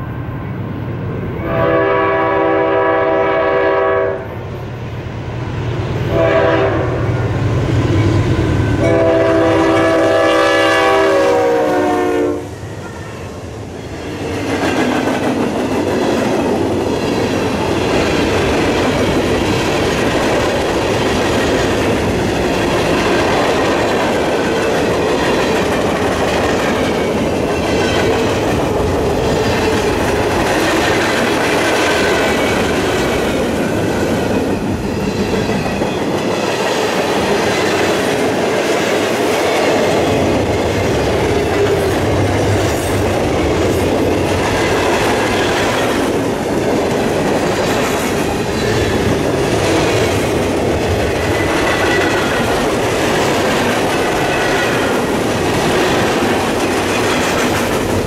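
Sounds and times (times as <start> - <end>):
locomotive air horn: 1.4 - 4.4, 6.1 - 7.0, 8.8 - 12.5.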